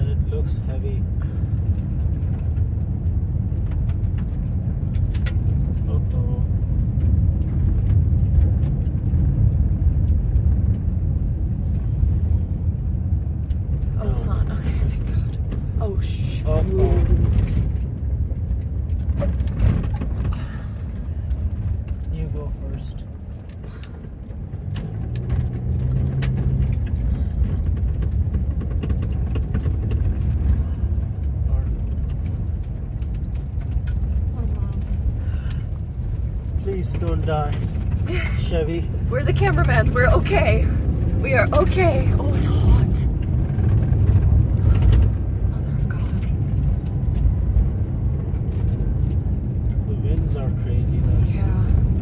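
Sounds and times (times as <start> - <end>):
car driving rumble: 0.0 - 52.0
sharp crackles and ticks: 1.6 - 11.4, 21.1 - 38.3
wind noise: 23.0 - 52.0.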